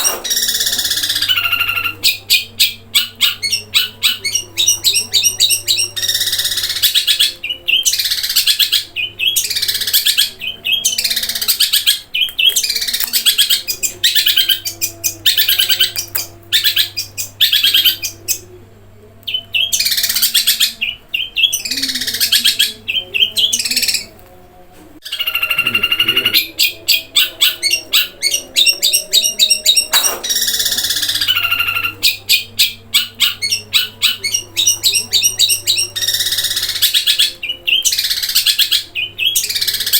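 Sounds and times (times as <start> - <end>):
long drawn-out bird call: 0.0 - 18.4, 25.1 - 39.9
bird chirps and trills: 0.0 - 18.6, 19.2 - 24.1, 25.0 - 39.9
faint low hum: 0.0 - 39.9.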